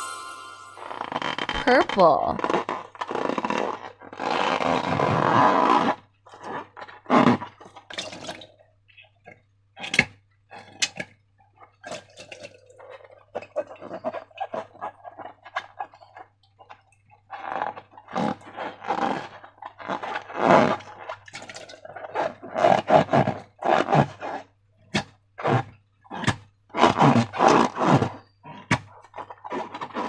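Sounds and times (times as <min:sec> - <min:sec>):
wet slime squelching: 0:02.4 - 0:30.0.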